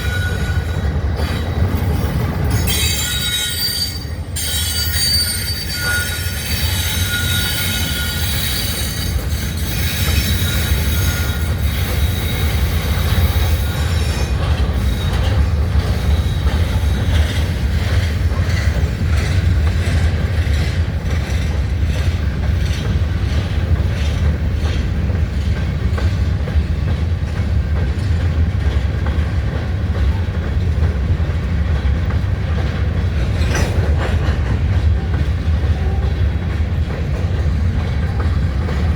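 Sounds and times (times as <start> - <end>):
train wheels squealing: 0.0 - 24.8, 33.2 - 36.3
wheels clicking over rail joints: 0.0 - 38.9.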